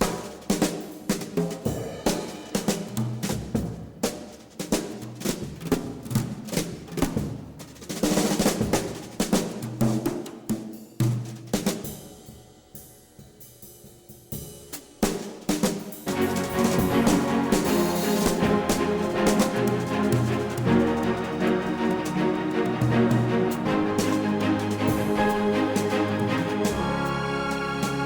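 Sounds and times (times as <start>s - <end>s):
drum-led music: 13.4s - 28.0s.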